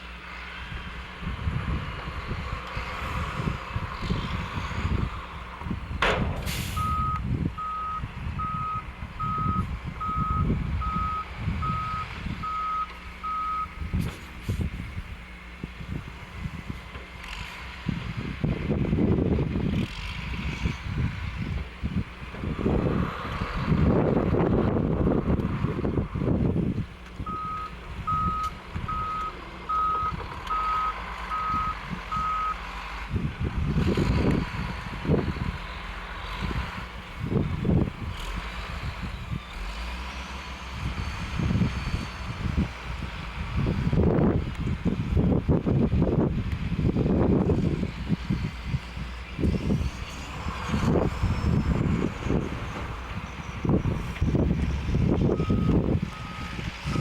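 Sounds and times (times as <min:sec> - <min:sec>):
gusty low rumble: 0:00.5 - 0:57.0
short loud hiss: 0:06.4 - 0:06.9
truck backup alarm beeping: 0:06.5 - 0:13.9, 0:27.2 - 0:32.6, 0:53.2 - 0:57.0.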